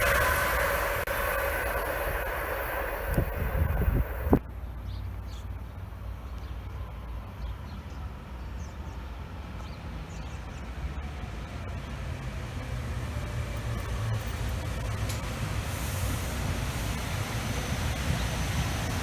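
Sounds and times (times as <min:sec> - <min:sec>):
faint tones sliding down: 0:00.0 - 0:04.4
train low rumble: 0:00.0 - 0:19.0.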